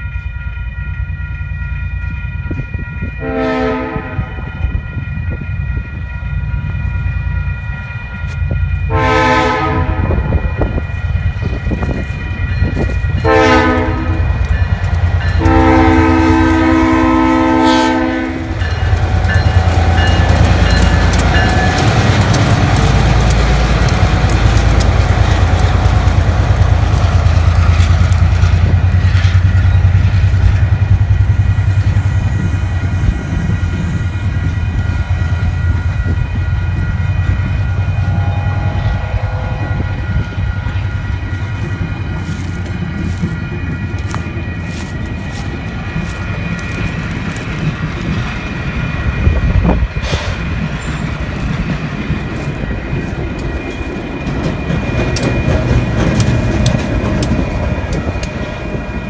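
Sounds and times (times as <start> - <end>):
train wheels on rails: 0.0 - 59.0
locomotive horn blasts: 3.2 - 4.6, 8.9 - 10.8, 13.2 - 32.4, 36.9 - 40.8
diesel engine rumble: 18.2 - 46.3.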